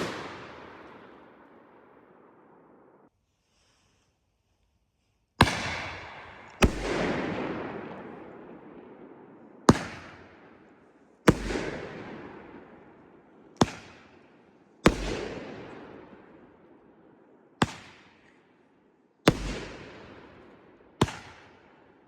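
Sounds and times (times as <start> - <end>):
firework bangs with rolling echo: 0.0 - 3.0, 5.4 - 10.7, 11.3 - 14.2, 14.8 - 16.8, 19.3 - 21.8.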